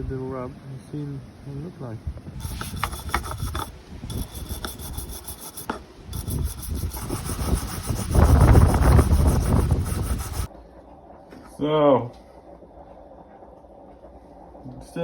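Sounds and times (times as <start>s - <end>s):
rough rubbing by hand: 2.4s - 10.5s.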